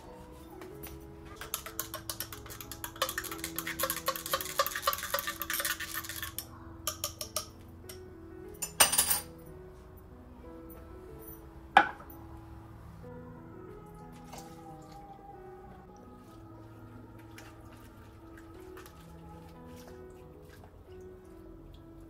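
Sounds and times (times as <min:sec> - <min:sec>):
soft background music: 0:00.0 - 0:22.0
metal utensil clinking in pot: 0:01.4 - 0:08.0, 0:08.6 - 0:09.3.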